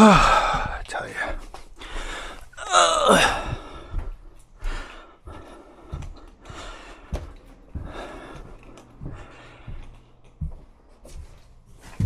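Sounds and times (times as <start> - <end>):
man groaning: 0.0 - 0.8, 2.6 - 3.5.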